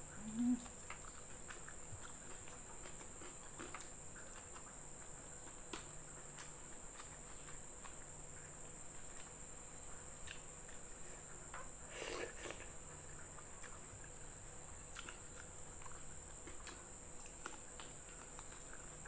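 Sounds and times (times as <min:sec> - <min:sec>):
person chewing fried chicken: 0:00.0 - 0:19.0
steady high-pitched hiss: 0:00.0 - 0:19.0.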